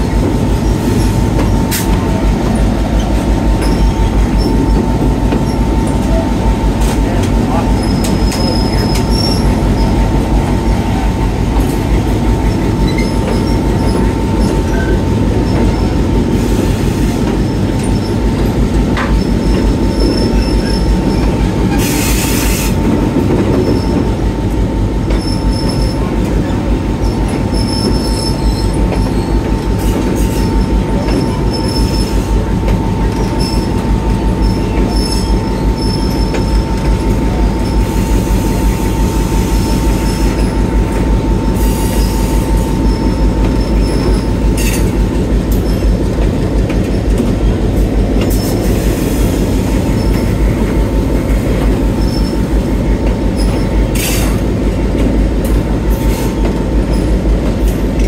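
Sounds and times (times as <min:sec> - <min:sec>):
train wheels rumbling on rail: 0:00.0 - 0:58.0
wheel squeals: 0:07.8 - 0:10.0, 0:12.5 - 0:15.9, 0:27.0 - 0:32.2, 0:51.9 - 0:52.5.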